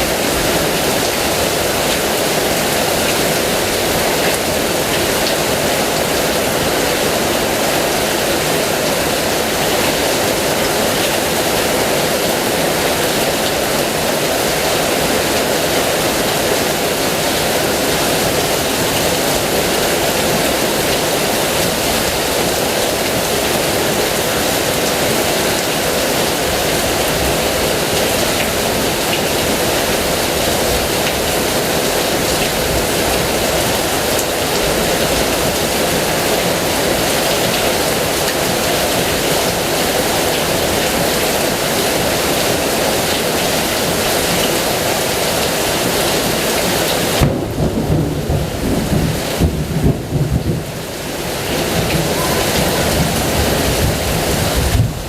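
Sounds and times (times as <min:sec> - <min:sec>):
heavy rain falling: 0:00.0 - 0:55.0
low rumble of thunder: 0:47.2 - 0:50.9, 0:51.7 - 0:55.0.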